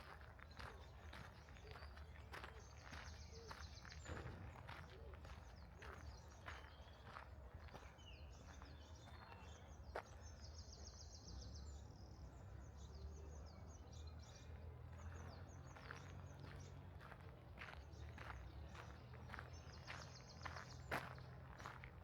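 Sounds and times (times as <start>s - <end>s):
faint footsteps on a path: 0.0s - 13.0s, 13.6s - 22.0s
songbirds chirping: 0.0s - 22.0s.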